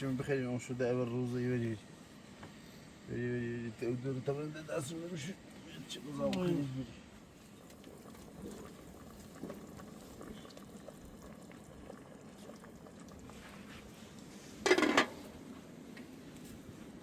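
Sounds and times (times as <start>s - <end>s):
liquid simmering: 4.8s - 17.0s.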